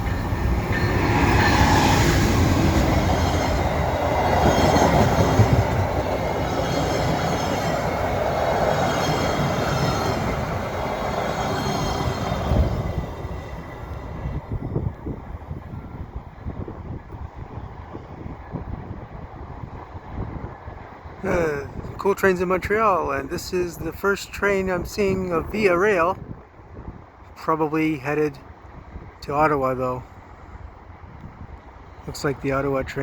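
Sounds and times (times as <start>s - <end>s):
high squealing of train wheels: 0.0s - 14.5s
train wheels rumbling on rails: 0.0s - 22.0s.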